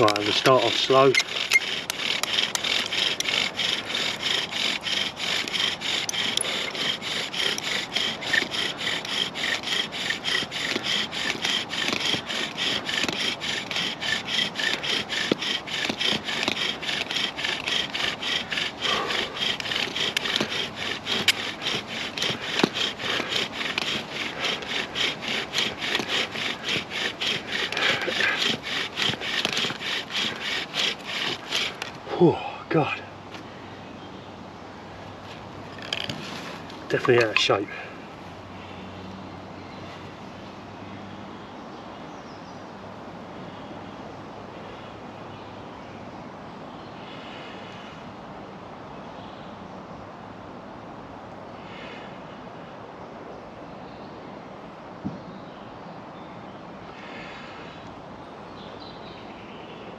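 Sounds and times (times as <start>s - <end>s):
bow drill grinding wood: 0.0s - 32.2s, 35.7s - 37.9s.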